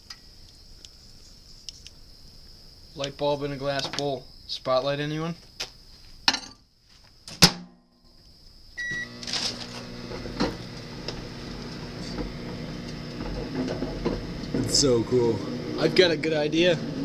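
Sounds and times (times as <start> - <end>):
microwave beep: 8.8 - 10.2
microwave humming: 8.8 - 17.0.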